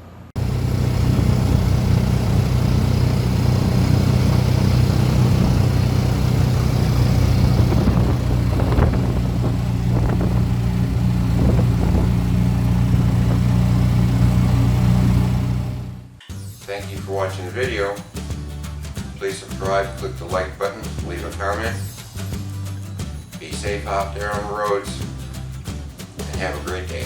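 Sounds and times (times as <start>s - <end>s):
vehicle engine humming: 0.0s - 16.2s.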